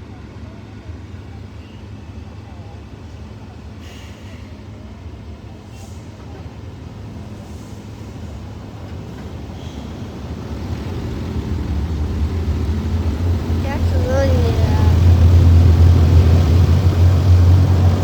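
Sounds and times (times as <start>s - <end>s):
car wash machinery rumbling: 4.7s - 18.0s.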